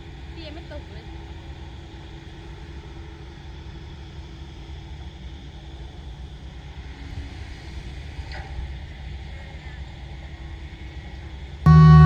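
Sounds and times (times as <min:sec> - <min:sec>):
truck diesel engine rumbling: 0:11.7 - 0:12.0.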